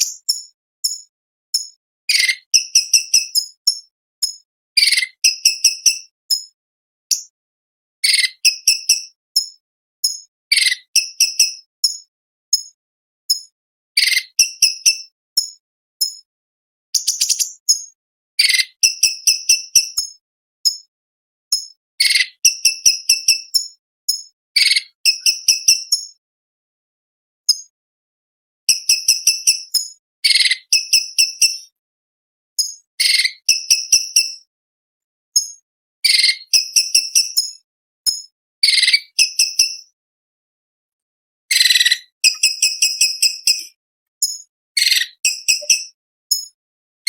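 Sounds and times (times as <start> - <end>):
bird singing rattles and chips: 0.0 - 5.6, 17.0 - 20.1
bird chirping: 0.0 - 7.3, 8.0 - 12.7, 14.0 - 16.2, 17.0 - 20.8, 21.5 - 26.2, 28.7 - 31.7, 32.6 - 34.4, 35.4 - 39.9, 41.5 - 46.6.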